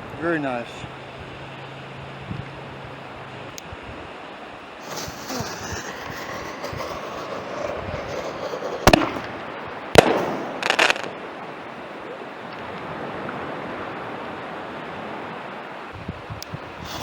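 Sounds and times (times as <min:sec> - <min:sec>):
firework bangs: 0:04.8 - 0:11.2
firework crackle: 0:04.8 - 0:11.2.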